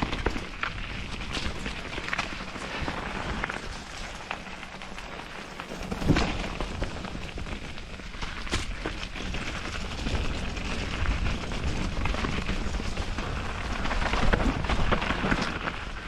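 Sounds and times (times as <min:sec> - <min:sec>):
bike knocking and rattling: 0:00.0 - 0:16.0
tyre and wind rushing: 0:01.5 - 0:08.8.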